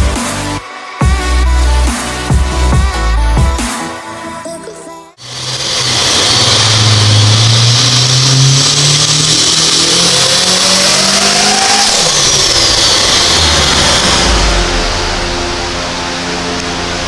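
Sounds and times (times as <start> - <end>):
engine revving at full throttle: 5.2 - 17.0.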